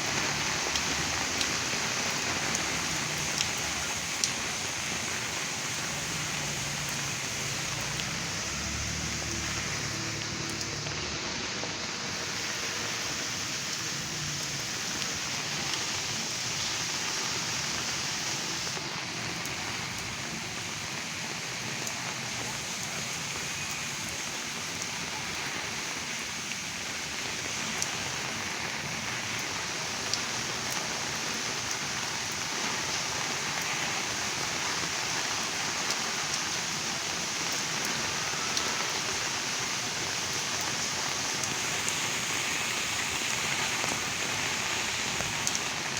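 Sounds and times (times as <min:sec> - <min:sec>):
heavy rain falling: 0:00.0 - 0:45.9
raindrop ticks: 0:00.2 - 0:05.0, 0:06.4 - 0:10.9, 0:44.8 - 0:45.9.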